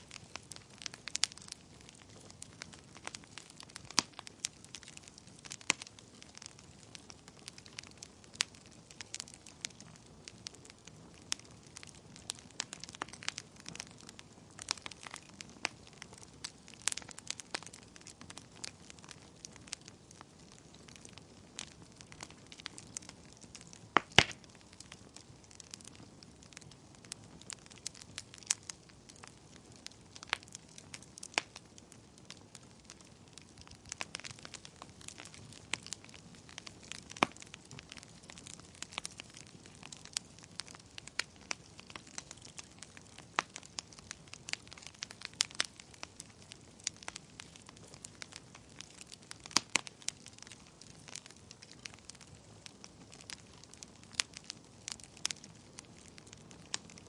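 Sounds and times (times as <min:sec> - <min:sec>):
low steady hiss: 0:00.0 - 0:57.0
wood fire crackling and popping: 0:00.0 - 0:57.0.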